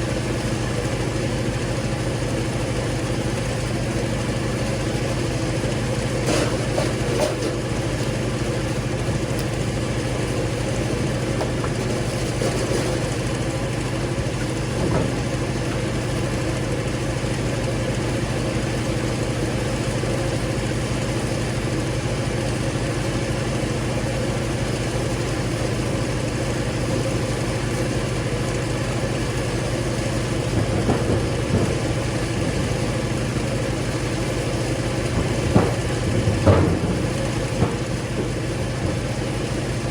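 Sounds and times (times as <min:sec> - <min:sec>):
log splitter engine running: 0:00.0 - 0:39.9
short knocks: 0:14.4 - 0:16.0, 0:30.4 - 0:39.7.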